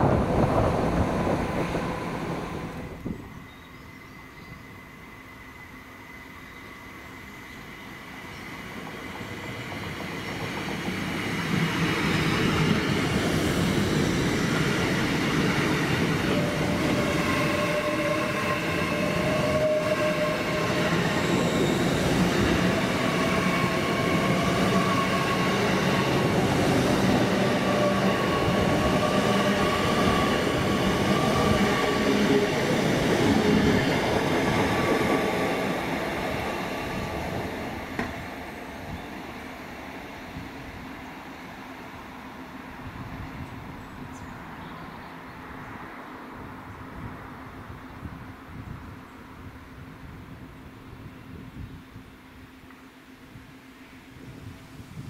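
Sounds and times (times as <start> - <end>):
train wheels rumbling: 0.0 - 4.0, 7.3 - 41.1.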